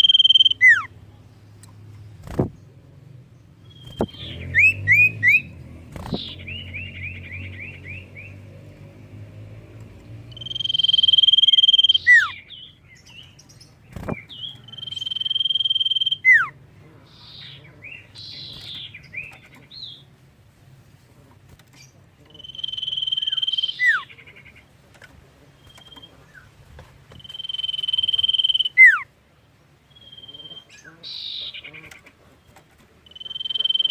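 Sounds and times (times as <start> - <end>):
bird singing chirps and whistles: 0.0 - 0.9, 3.6 - 8.4, 10.3 - 16.6, 22.4 - 24.2, 27.1 - 29.1, 29.9 - 31.7, 33.0 - 33.9.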